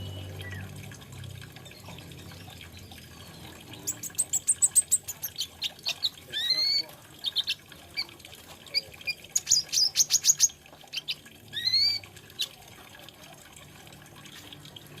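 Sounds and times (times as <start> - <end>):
sunbird singing: 1.7 - 12.5.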